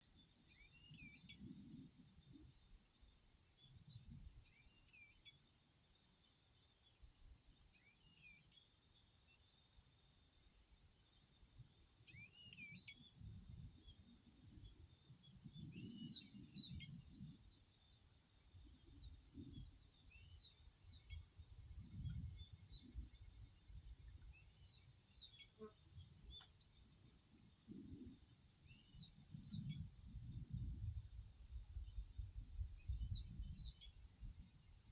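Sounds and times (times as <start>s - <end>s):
high-pitched insect chorus: 0.0s - 34.9s
wind buffeting microphone: 21.6s - 23.2s, 29.3s - 34.5s.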